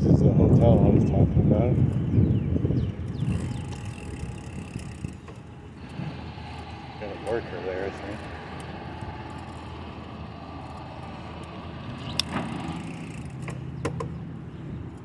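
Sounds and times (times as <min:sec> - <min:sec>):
bicycle being ridden: 0:00.0 - 0:15.0
low hum: 0:02.0 - 0:15.0
sharp clicks: 0:10.6 - 0:14.2.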